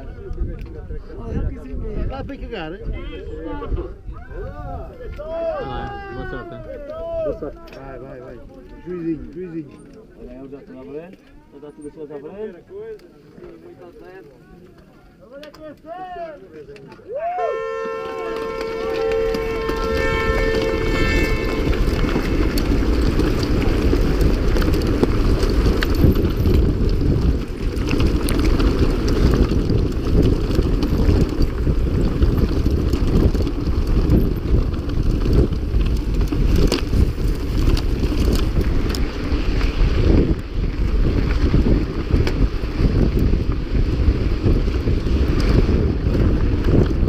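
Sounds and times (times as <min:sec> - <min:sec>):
wind buffeting microphone: 0:00.0 - 0:09.7, 0:17.6 - 0:47.0
bike clicks and knocks: 0:12.9 - 0:17.1, 0:18.2 - 0:47.0.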